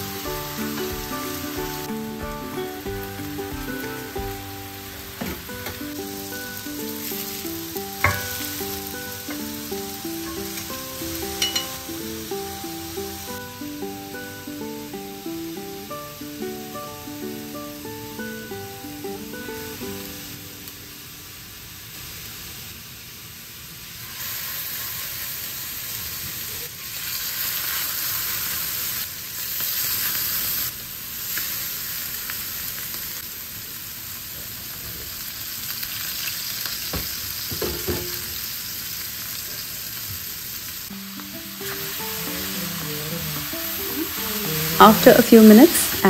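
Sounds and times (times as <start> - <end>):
background music: 0.0 - 20.7, 40.9 - 46.0
meat patties sizzling in oil: 0.0 - 46.0.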